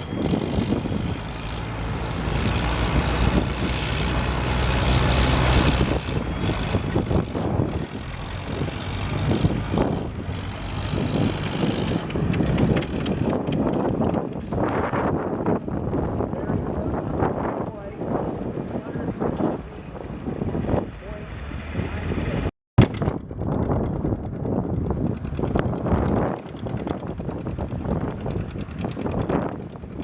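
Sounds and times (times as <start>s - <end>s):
tractor engine working under load: 0.0s - 14.9s.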